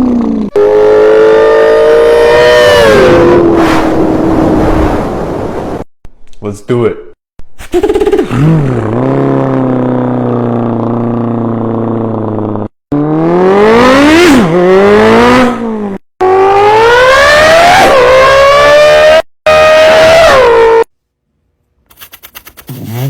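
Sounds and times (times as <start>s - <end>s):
man imitating car engine: 0.0s - 3.1s, 7.7s - 14.6s.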